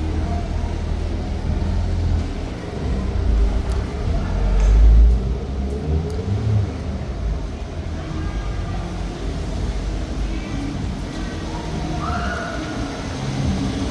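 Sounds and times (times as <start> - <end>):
vehicle rumbling past: 0.0 - 8.0
street noise: 0.0 - 13.9.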